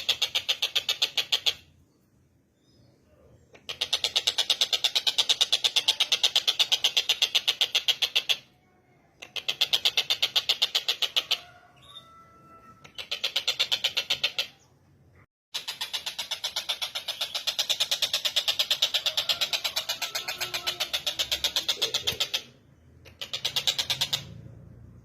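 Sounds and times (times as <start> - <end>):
kingfisher rattling call: 15.6 - 24.4.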